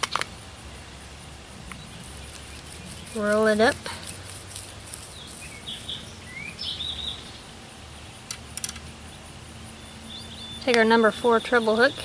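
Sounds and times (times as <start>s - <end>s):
sharp small clicks: 0.0s - 0.4s, 1.7s - 7.2s, 8.2s - 8.9s
bird chirping: 1.6s - 12.0s.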